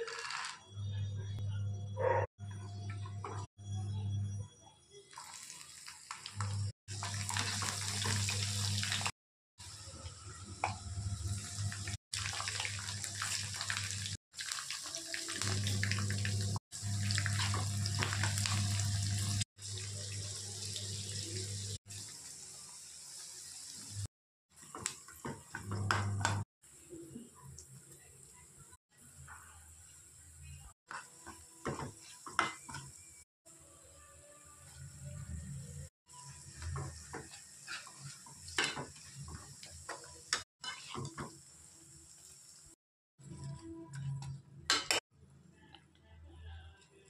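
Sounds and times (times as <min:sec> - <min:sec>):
hot oil sizzling and crackling: 0:05.1 - 0:25.7, 0:26.3 - 0:33.3, 0:34.7 - 0:42.8
steel spatula stirring in a pan: 0:36.2 - 0:41.3.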